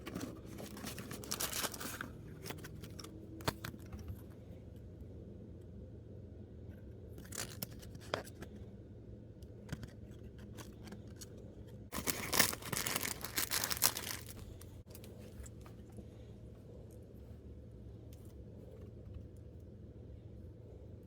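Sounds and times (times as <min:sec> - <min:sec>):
plastic packaging crinkling and tearing: 0:00.0 - 0:03.1, 0:07.2 - 0:08.3, 0:11.9 - 0:14.8.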